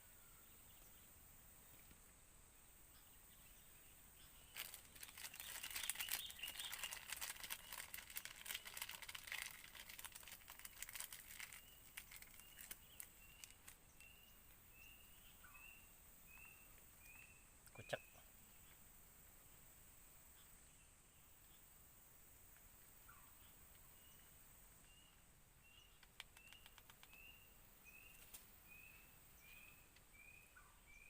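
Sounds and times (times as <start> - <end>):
crisp crackling rustle: 4.5 - 14.0, 26.0 - 27.2.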